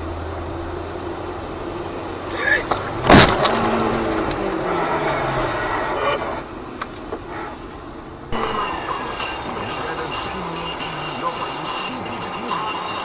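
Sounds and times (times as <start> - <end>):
car engine: 0.0 - 13.0
road noise: 0.0 - 13.0.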